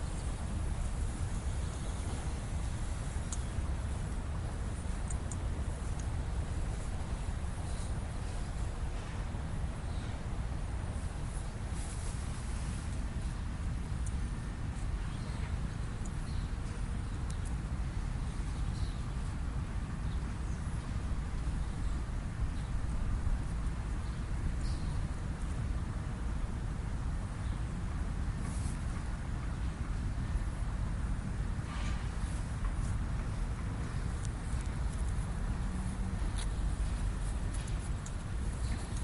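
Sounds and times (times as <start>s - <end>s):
wind rumbling on microphone: 0.0s - 39.0s.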